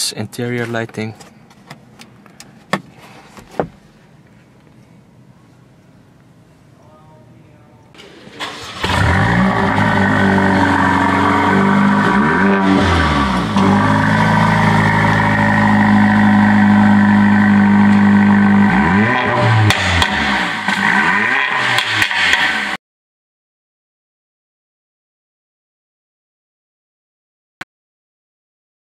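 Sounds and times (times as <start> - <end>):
car engine starting and idling: 8.0 - 22.8
engine revving: 8.3 - 22.8.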